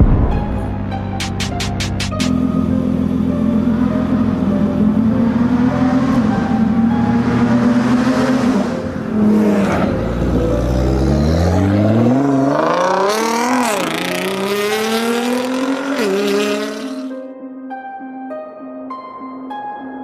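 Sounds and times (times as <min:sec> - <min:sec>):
car engine accelerating hard: 0:02.2 - 0:17.1.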